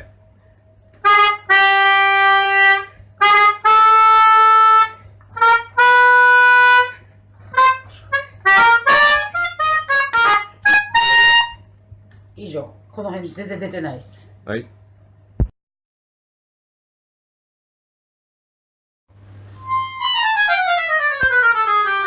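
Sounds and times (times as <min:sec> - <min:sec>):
keyboard harmonica notes: 0:01.0 - 0:11.7, 0:19.4 - 0:22.0.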